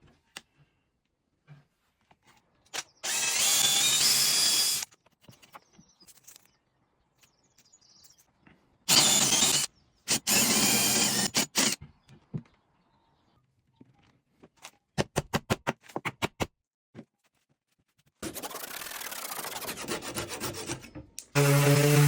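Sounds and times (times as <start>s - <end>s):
power drill boring into wood: 3.0s - 4.9s, 8.9s - 11.8s, 21.4s - 22.0s.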